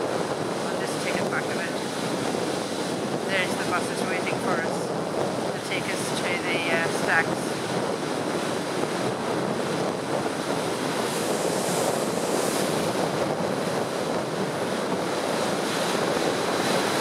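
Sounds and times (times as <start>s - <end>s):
water along boat hull: 0.0s - 17.0s
wind on microphone: 0.0s - 17.0s.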